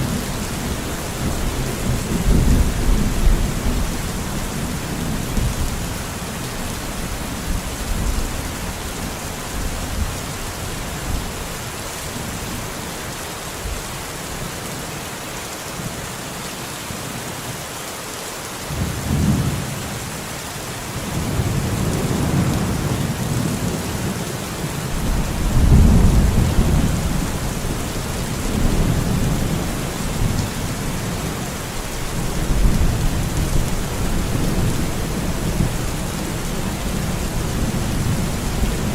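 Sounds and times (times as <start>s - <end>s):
steady rain falling: 0.0s - 38.9s
thunder rumbling: 24.8s - 31.4s.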